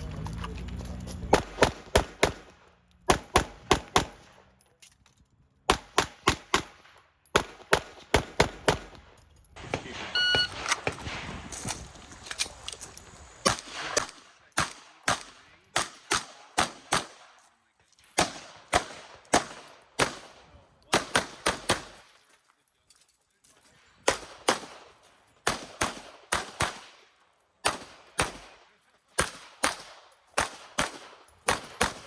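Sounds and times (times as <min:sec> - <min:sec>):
pistol shots: 0:01.3 - 0:04.4, 0:05.7 - 0:11.9, 0:13.4 - 0:17.4, 0:18.2 - 0:22.1, 0:24.0 - 0:27.0, 0:27.6 - 0:32.0
short electronic beep: 0:10.1 - 0:10.6.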